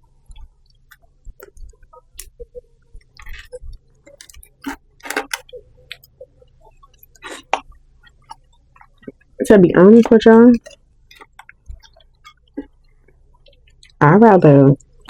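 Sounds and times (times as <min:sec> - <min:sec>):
person chewing: 0:03.2 - 0:06.1, 0:06.9 - 0:09.3, 0:10.6 - 0:12.8.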